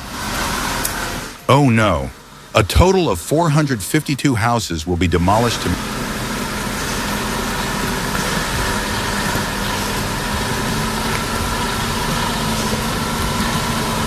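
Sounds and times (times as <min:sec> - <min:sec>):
engine running with whine: 0:05.6 - 0:14.0.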